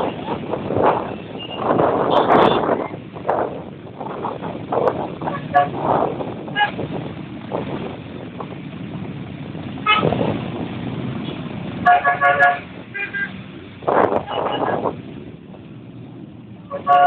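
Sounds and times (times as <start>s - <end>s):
vehicle horns beeping: 1.1s - 2.8s, 5.3s - 5.8s, 9.8s - 10.2s, 11.2s - 13.4s, 14.2s - 14.8s, 16.7s - 17.0s.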